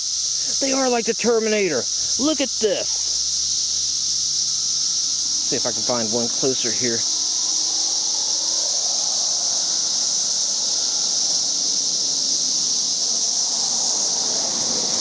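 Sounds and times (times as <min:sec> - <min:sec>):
cicadas singing: 0:00.0 - 0:15.0.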